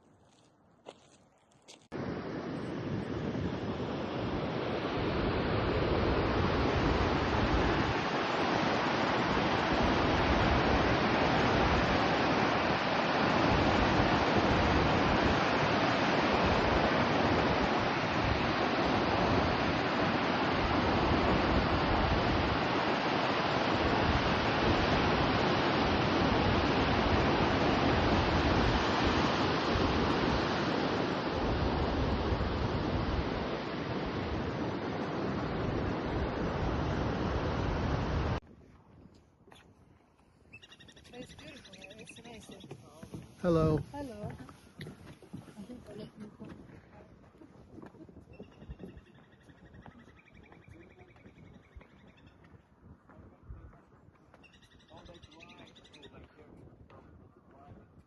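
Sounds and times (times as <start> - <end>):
rushing water: 4.0 - 38.4, 43.1 - 44.7.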